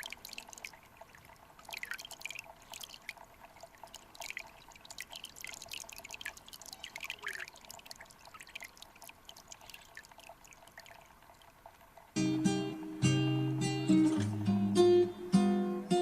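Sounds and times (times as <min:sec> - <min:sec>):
water plinks and splashes: 0:00.0 - 0:12.2
faint rush of water: 0:00.0 - 0:14.4
acoustic guitar music: 0:12.2 - 0:16.0.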